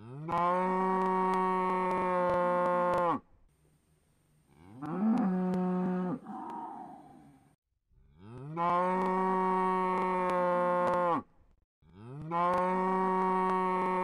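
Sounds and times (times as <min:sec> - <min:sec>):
cow mooing: 0:04.6 - 0:07.4, 0:08.2 - 0:11.3, 0:12.0 - 0:14.0.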